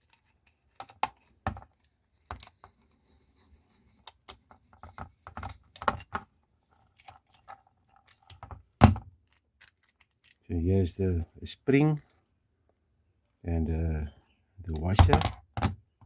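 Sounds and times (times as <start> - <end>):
metal parts clinking and knocking: 0.0 - 2.7, 4.1 - 6.2, 6.8 - 10.4, 14.7 - 15.8.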